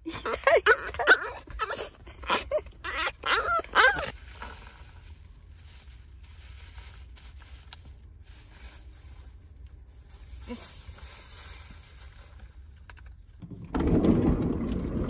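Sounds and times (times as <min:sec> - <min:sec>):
dog whining: 0:00.4 - 0:04.2
faint rustling and scraping: 0:03.4 - 0:13.4.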